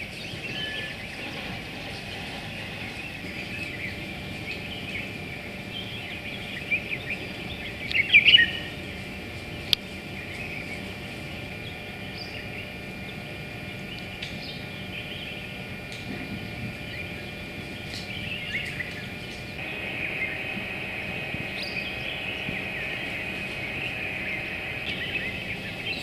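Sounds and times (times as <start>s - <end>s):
birds chirping and calling: 0.0s - 9.2s, 16.4s - 26.0s
high-pitched background tone: 19.6s - 26.0s.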